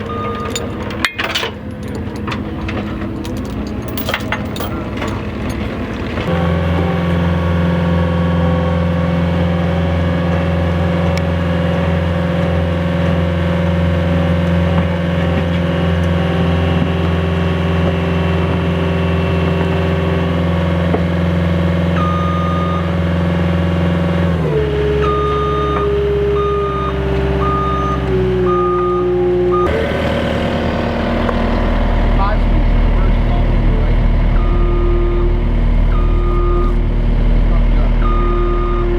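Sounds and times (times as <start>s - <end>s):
reversing alarm beeping: 0.0s - 0.8s, 21.8s - 23.2s, 24.9s - 30.0s, 34.2s - 36.8s, 37.6s - 38.9s
truck engine running: 0.0s - 38.9s.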